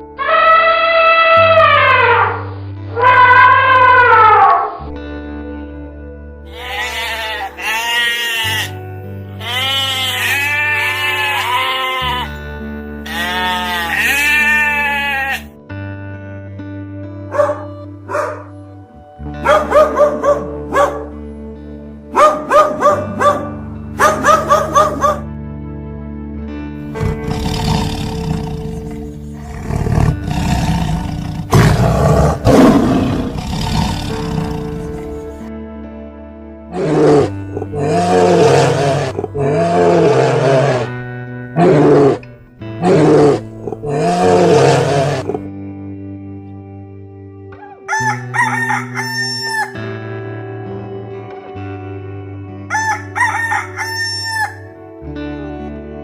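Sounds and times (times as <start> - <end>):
background music: 0.0 - 56.0
goat bleating: 6.5 - 15.5
big cat roaring: 26.9 - 35.4, 36.7 - 45.5.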